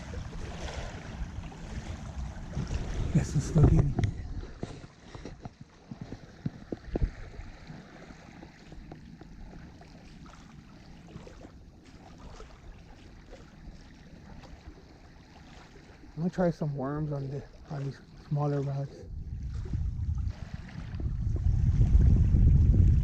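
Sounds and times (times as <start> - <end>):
wind on microphone: 0.0 - 10.0, 19.0 - 23.0.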